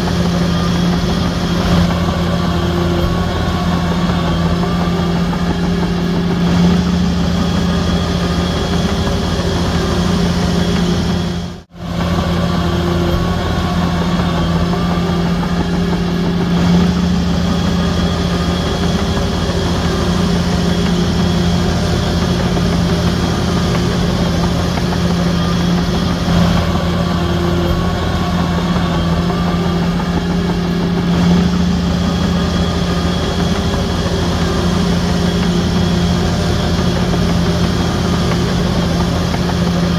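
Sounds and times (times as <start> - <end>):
bulldozer diesel engine droning: 0.0 - 39.9.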